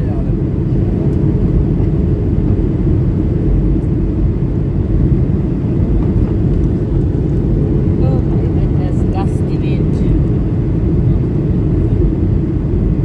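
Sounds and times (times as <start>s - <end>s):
airflow over fuselage: 0.0s - 13.0s
jet engine rumble: 0.0s - 13.0s.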